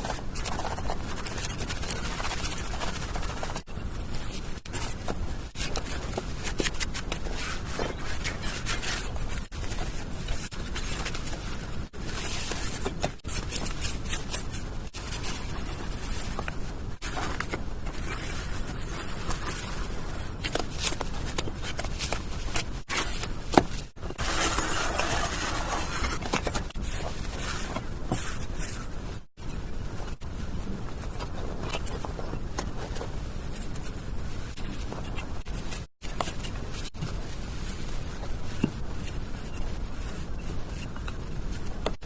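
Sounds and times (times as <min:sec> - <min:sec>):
hand tool scraping hard surface: 0:22.8 - 0:28.9.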